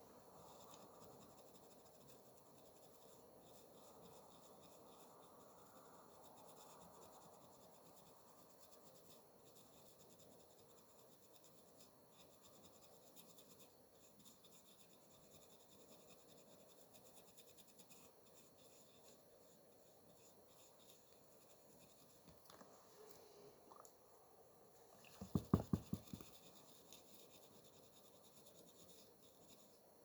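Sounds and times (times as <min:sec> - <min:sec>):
faint hiss: 0:00.0 - 0:30.0
small ticks: 0:00.4 - 0:19.0
light scratching: 0:25.0 - 0:29.8.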